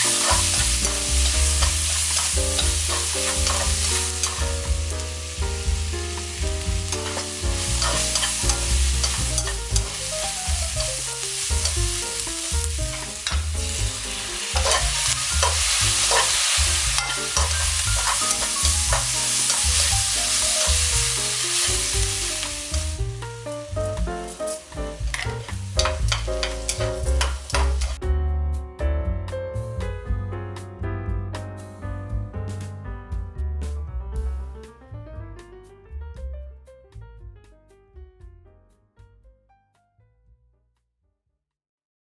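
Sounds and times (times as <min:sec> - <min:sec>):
food sizzling in oil: 0:00.0 - 0:23.5
low musical notes: 0:00.0 - 0:39.2.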